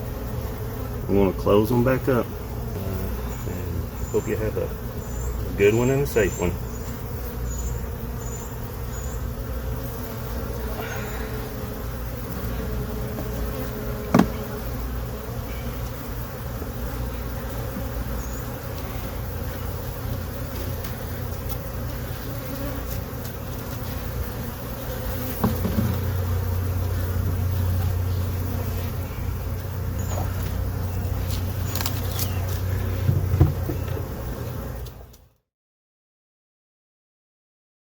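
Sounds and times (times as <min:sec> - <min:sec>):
bees buzzing: 0:00.0 - 0:35.2
sharp knock: 0:14.1 - 0:14.4.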